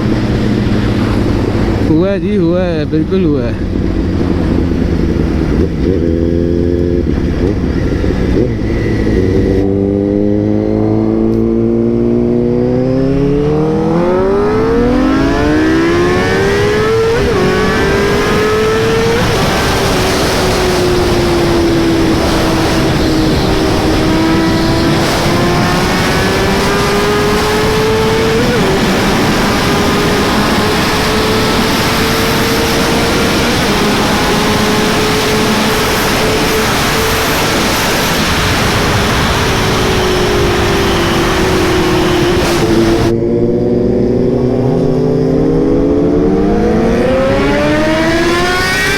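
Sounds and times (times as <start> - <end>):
motorcycle engine accelerating: 0.0 - 48.9
wind rushing over microphone: 0.0 - 48.9.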